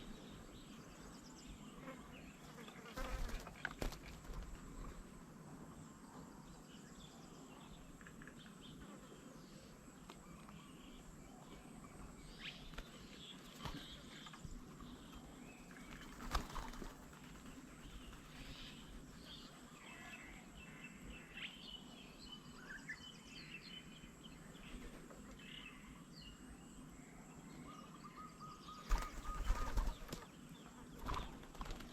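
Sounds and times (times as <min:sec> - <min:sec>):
insects buzzing: 0:00.0 - 0:31.9
bird chirps: 0:27.5 - 0:31.9.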